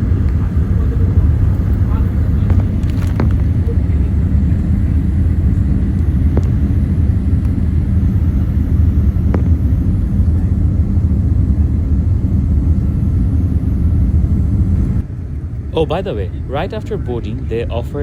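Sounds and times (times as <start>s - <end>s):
airplane cabin engine and airflow rumble: 0.0s - 18.0s.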